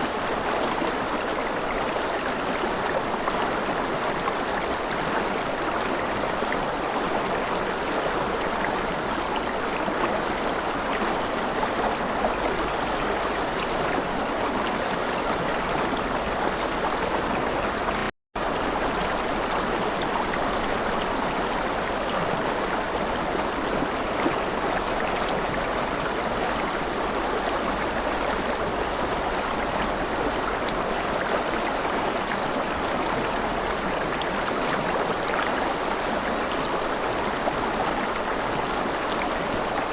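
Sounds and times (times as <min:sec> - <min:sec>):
river water flowing and splashing: 0:00.0 - 0:39.9.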